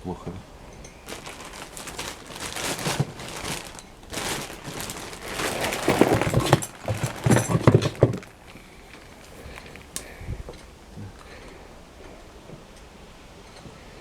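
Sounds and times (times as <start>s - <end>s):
rustling: 0.7s - 13.9s
tools and wires knocking and clicking: 5.9s - 8.3s.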